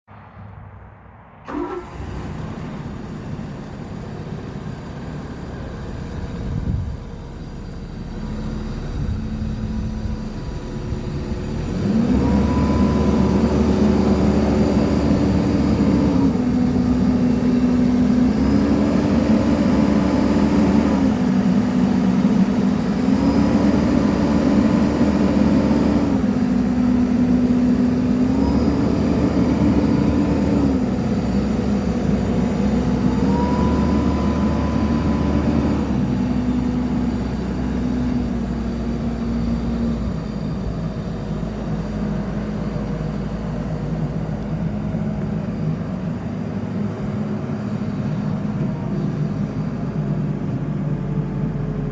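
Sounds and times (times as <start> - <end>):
hydraulic whine stepping in pitch: 0.1 - 4.0, 28.4 - 41.7
excavator diesel engine running: 1.4 - 51.9.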